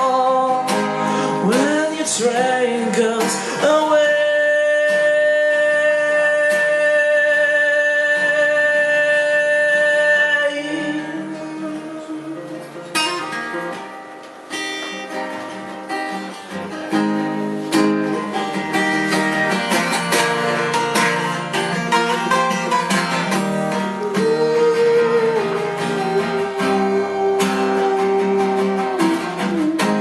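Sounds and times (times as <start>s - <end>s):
plucked acoustic guitar: 0.0s - 30.0s
live band held chord: 9.9s - 30.0s.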